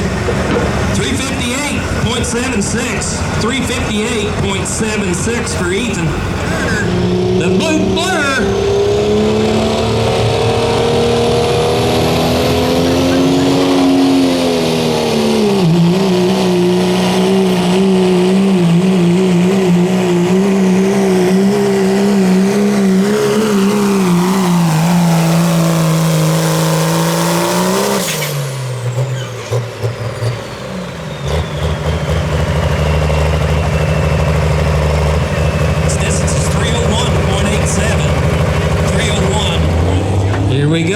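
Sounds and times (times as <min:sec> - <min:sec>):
diesel engine idling: 0:00.0 - 0:08.5, 0:29.2 - 0:40.9
diesel truck engine at high revs: 0:00.0 - 0:40.9.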